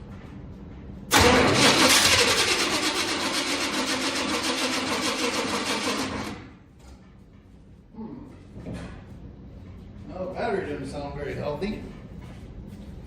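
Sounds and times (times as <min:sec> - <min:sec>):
starter motor cranking engine: 0:01.1 - 0:06.5.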